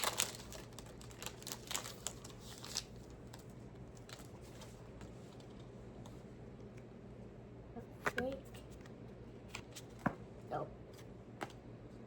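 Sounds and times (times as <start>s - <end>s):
foil wrapper and cards crinkling: 0.0s - 4.7s
faint room hum: 0.0s - 12.0s.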